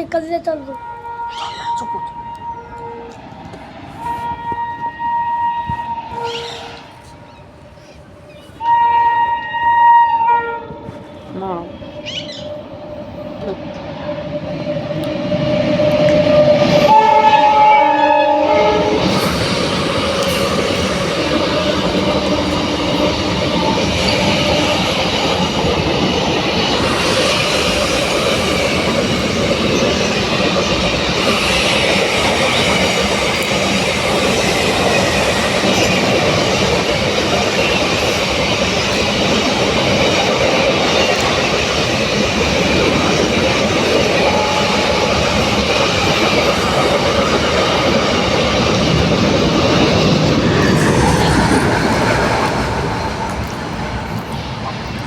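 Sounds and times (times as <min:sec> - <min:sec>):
train horn: 0:00.7 - 0:07.2, 0:08.6 - 0:13.6, 0:15.5 - 0:25.2, 0:44.0 - 0:45.5
train wheels clattering on rails: 0:14.5 - 0:55.0.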